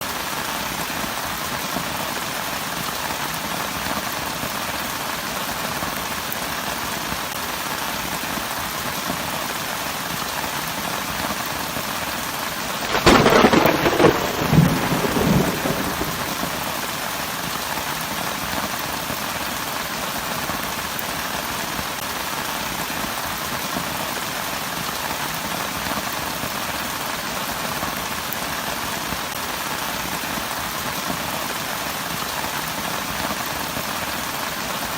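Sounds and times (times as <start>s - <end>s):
heavy rain falling: 0.0s - 34.9s
thunder crack: 12.8s - 16.7s.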